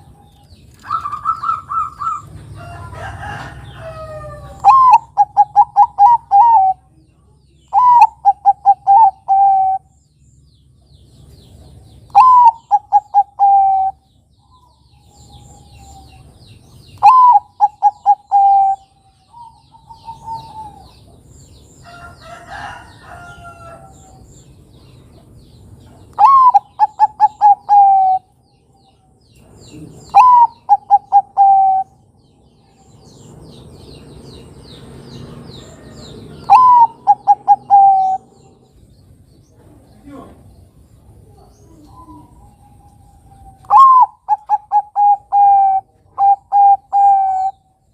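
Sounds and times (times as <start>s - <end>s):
faint bird chirping: 0.0s - 47.9s
dove cooing: 0.8s - 6.9s, 7.7s - 9.9s, 12.1s - 14.0s, 17.0s - 21.1s, 26.1s - 28.3s, 29.7s - 32.0s, 35.7s - 38.7s, 41.2s - 47.7s
rough bird call: 26.1s - 28.4s, 32.8s - 38.8s, 41.8s - 47.8s.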